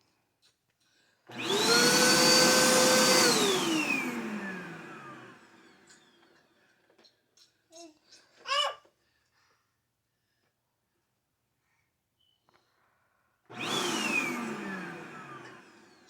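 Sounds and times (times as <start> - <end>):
vacuum cleaner motor whine: 1.3 - 6.4, 13.5 - 16.0.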